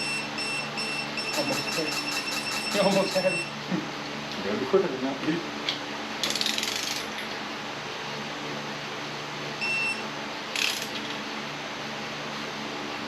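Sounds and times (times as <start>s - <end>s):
short electronic beep: 0.0s - 3.5s
steady low hum: 0.0s - 13.0s
ratchet wrench clicking: 6.2s - 7.2s, 10.6s - 11.2s.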